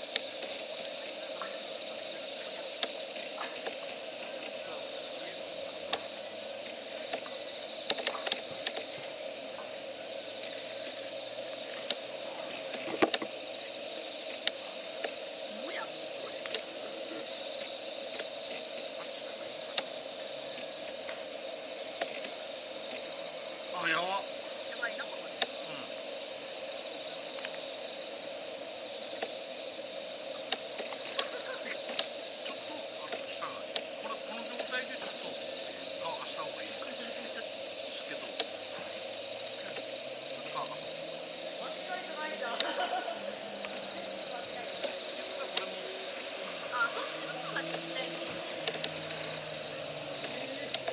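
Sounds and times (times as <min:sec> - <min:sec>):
burning wood popping: 0:00.0 - 0:50.9
steady high hiss: 0:00.0 - 0:50.9
wood fire crackling: 0:00.0 - 0:50.9
high-pitched whine: 0:29.4 - 0:50.9.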